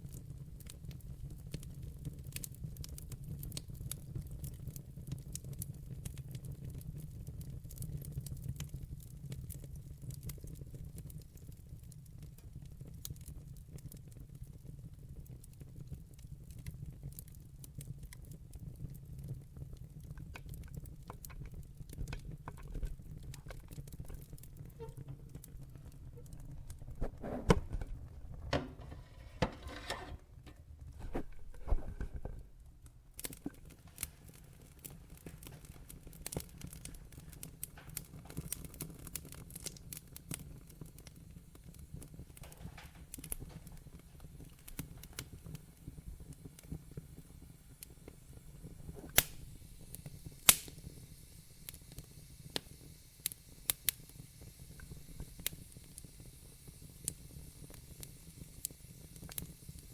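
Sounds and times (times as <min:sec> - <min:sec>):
low rumble of fire: 0:00.0 - 0:59.9
wood fire crackling: 0:00.0 - 0:59.9
sharp pops of fire: 0:41.7 - 0:59.9.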